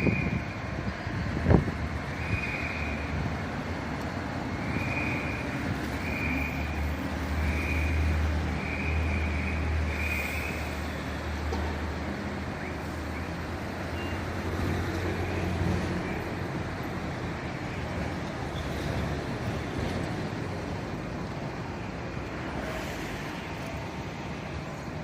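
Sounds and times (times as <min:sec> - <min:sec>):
high warning beeps: 0:12.6 - 0:14.4.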